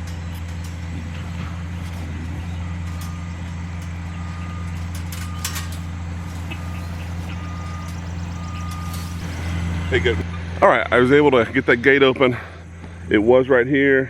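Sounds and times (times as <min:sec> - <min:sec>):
sharp metallic clank: 0:00.0 - 0:10.2
heavy machinery engine running: 0:00.0 - 0:10.6
backup alarm beeping: 0:01.1 - 0:10.2.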